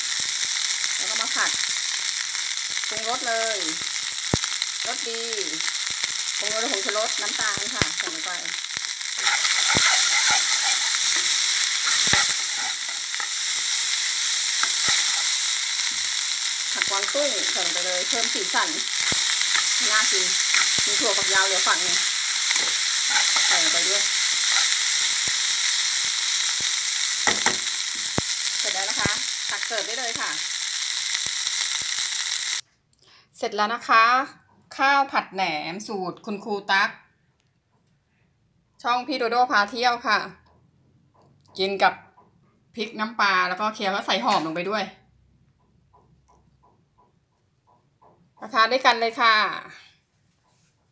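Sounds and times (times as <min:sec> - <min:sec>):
rice sizzling in a wok: 0:00.0 - 0:32.6, 0:48.5 - 0:49.5
spatula scraping against pan: 0:09.1 - 0:15.4.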